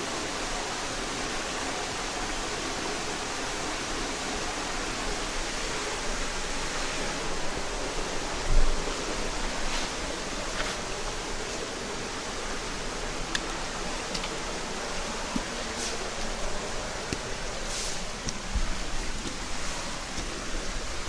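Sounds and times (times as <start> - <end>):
stream running over rocks: 0.0 - 21.0.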